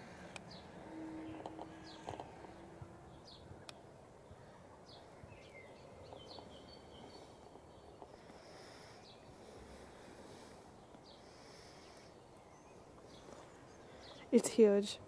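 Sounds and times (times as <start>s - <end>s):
bird chirping high: 0.5s - 3.8s.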